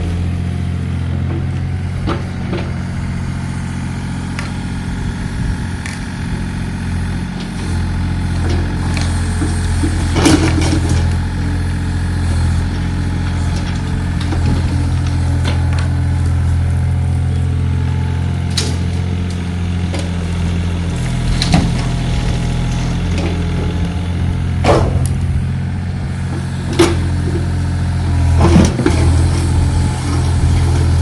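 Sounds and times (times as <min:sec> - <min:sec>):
engine idling: 0:00.0 - 0:31.0
sharp knocks: 0:24.6 - 0:25.2.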